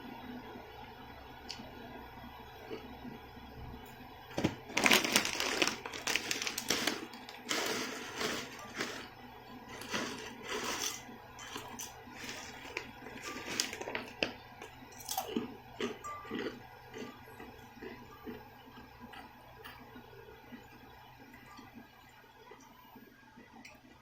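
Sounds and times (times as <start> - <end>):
slurping noodles: 5.4 - 9.1, 9.7 - 13.8
chewing noodles: 9.7 - 14.4, 15.0 - 19.8.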